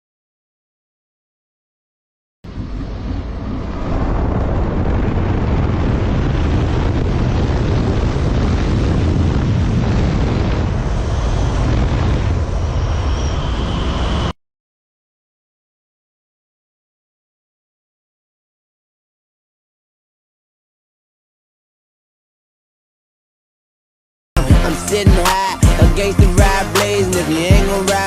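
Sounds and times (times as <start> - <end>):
wind buffeting microphone: 2.5 - 14.3
faint high whine: 10.8 - 14.4.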